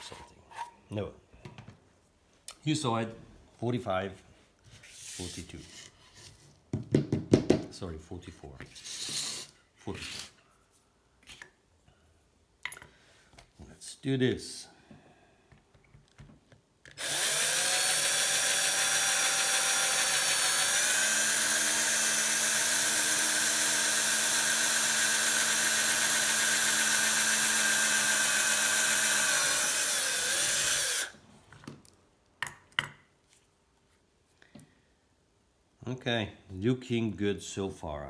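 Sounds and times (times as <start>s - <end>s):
electric drill whining: 17.0s - 31.2s.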